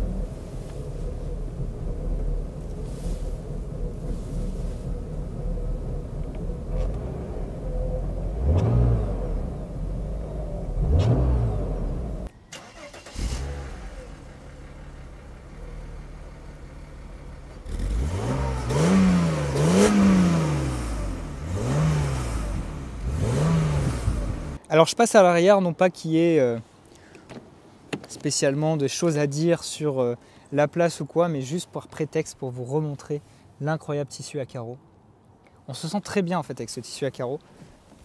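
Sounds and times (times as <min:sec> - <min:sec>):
car engine idling and revving: 0:00.0 - 0:24.6.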